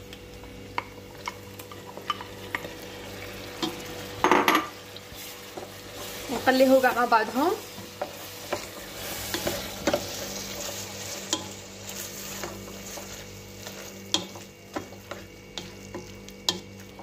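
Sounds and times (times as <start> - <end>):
food sizzling in a pot: 0.0 - 17.0.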